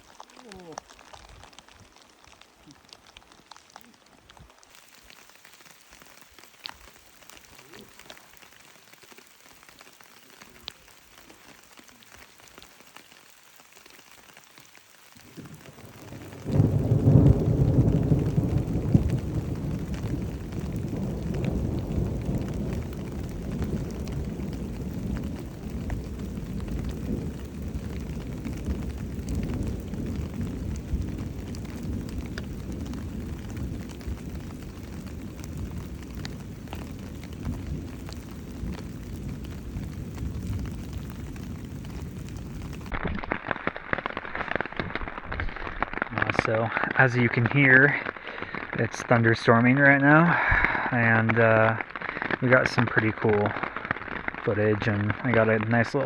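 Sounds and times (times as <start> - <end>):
light rain pattering: 0.0 - 56.0
rolling thunder: 15.2 - 43.0.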